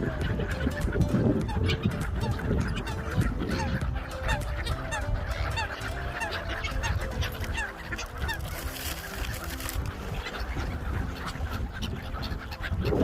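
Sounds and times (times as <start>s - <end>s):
gulls and waterbirds calling: 0.0s - 13.0s.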